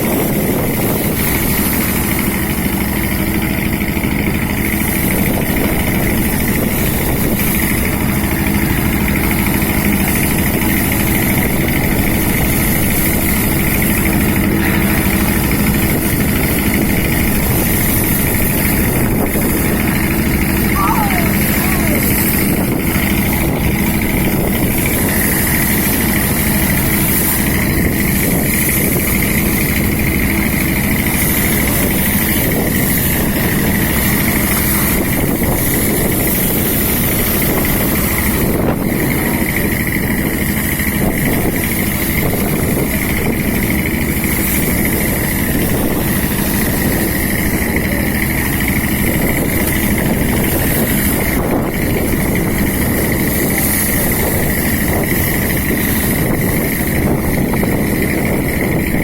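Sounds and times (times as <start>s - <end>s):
boat engine droning: 0.0s - 59.0s.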